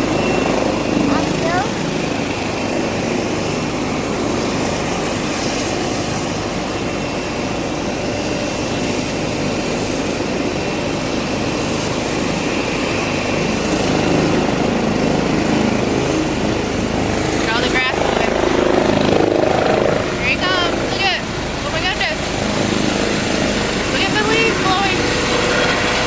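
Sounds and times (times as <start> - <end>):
helicopter engine and rotor roar: 0.0 - 26.0.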